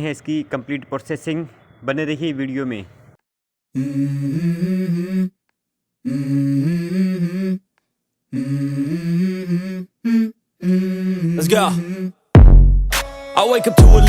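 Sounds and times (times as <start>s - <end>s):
person humming a melody: 3.8s - 5.4s, 6.0s - 7.7s, 8.3s - 12.2s.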